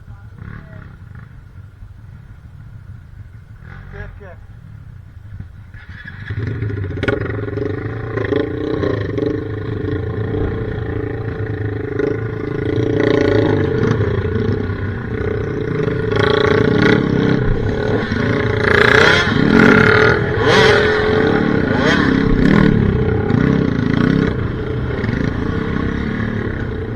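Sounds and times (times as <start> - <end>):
dirt bike engine revving high: 6.2 - 26.9.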